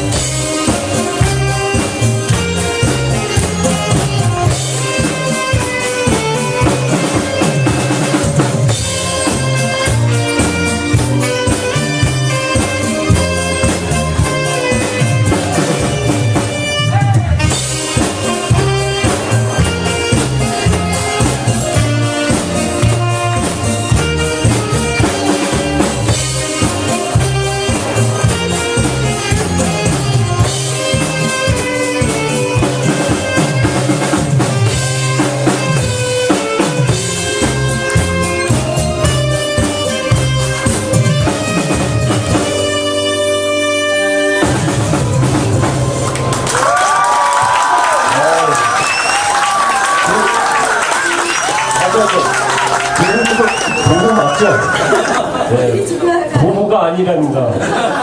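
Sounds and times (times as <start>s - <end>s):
drum kit beat: 0.0s - 55.5s
saxophone melody: 0.0s - 55.5s.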